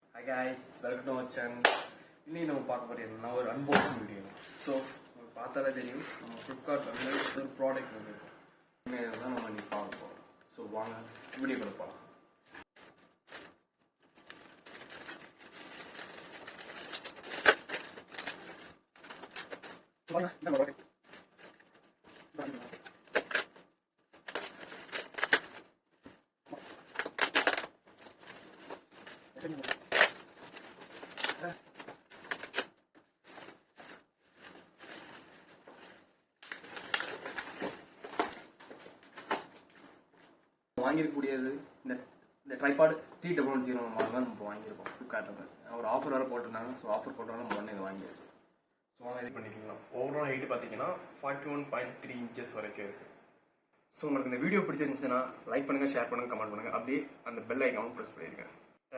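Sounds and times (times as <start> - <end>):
packaging rustling and clicking: 9.0 - 10.1, 12.5 - 40.4
packaging snapping: 14.2 - 35.6, 36.4 - 40.3.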